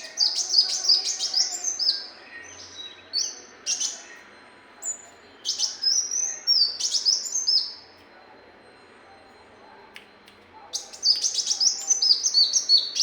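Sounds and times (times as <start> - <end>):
bird singing high whistled notes: 4.8 - 7.8, 10.8 - 13.0.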